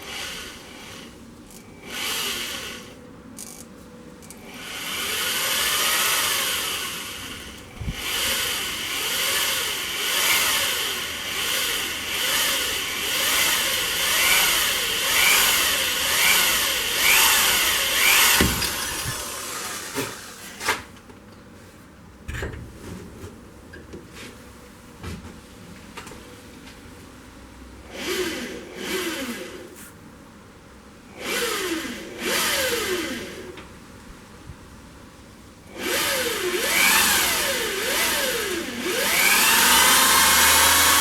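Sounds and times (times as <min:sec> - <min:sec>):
electric drill boring: 0:00.0 - 0:03.6, 0:04.3 - 0:20.3, 0:31.2 - 0:33.5, 0:35.8 - 0:41.0.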